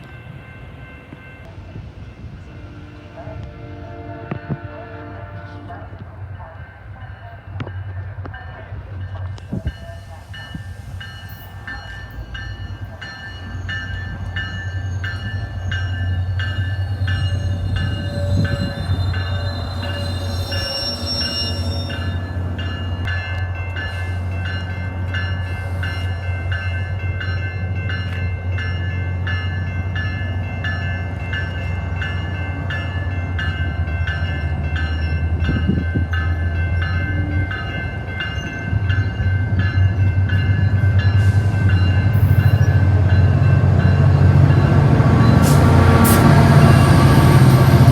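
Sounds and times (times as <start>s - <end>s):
train rumbling: 0.0s - 47.9s
warning bell ringing: 9.7s - 44.8s.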